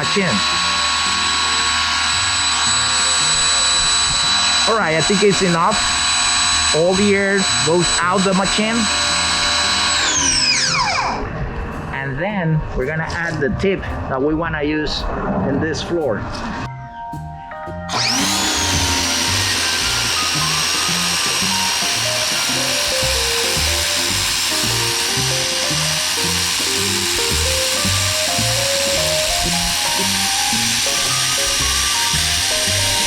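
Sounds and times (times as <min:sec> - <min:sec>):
pressure washer motor whining: 0:00.0 - 0:11.4, 0:17.8 - 0:33.0
background music: 0:00.0 - 0:33.0
water spray hissing: 0:18.7 - 0:33.0.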